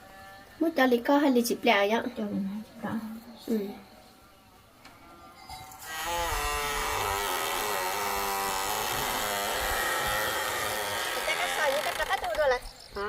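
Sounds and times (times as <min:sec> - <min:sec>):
small engine buzzing: 0:05.8 - 0:12.8.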